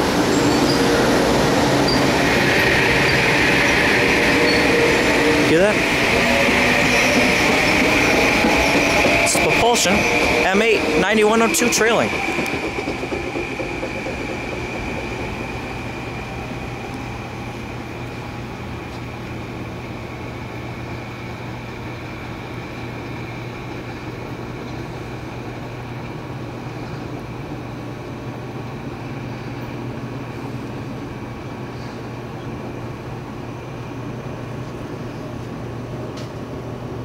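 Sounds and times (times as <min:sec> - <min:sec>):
electric train propulsion whine: 0:00.0 - 0:37.0.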